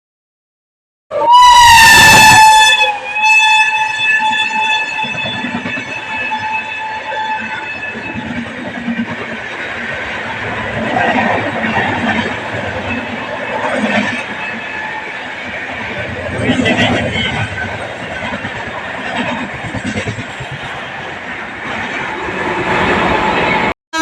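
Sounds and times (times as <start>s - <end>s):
locomotive horn blast: 1.1s - 8.3s
fast-moving train noise: 1.1s - 24.0s.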